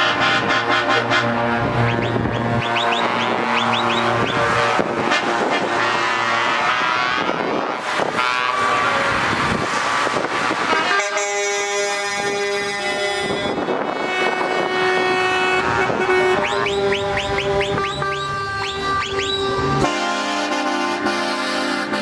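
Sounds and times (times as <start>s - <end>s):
truck air horns: 0.0s - 22.0s.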